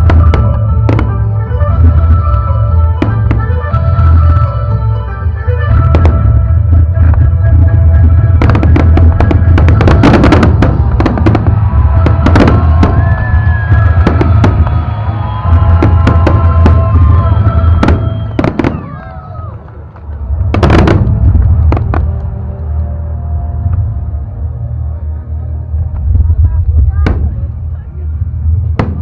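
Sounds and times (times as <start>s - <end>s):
fireworks exploding: 0.0s - 4.7s, 5.4s - 22.4s, 26.0s - 27.8s, 28.5s - 29.0s
loud music: 0.0s - 18.7s.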